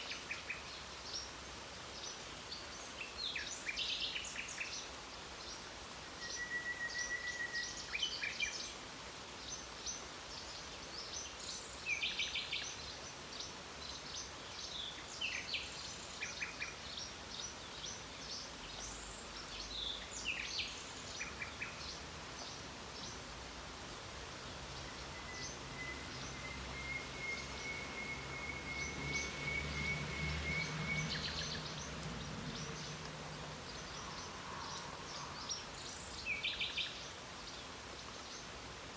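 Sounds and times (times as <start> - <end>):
light rain hiss: 0.0 - 38.9
long held whistle: 6.2 - 7.7, 25.3 - 31.0
songbirds singing and chirping: 9.4 - 38.9.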